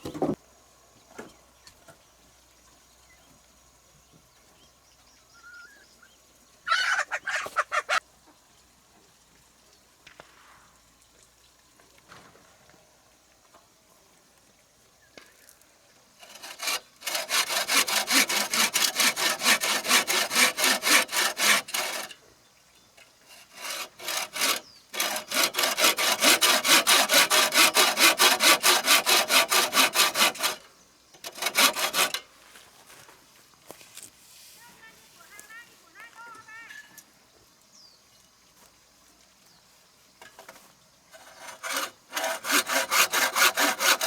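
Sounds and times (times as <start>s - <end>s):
hand saw cutting wood: 16.2s - 22.2s, 23.2s - 32.3s, 40.4s - 44.0s.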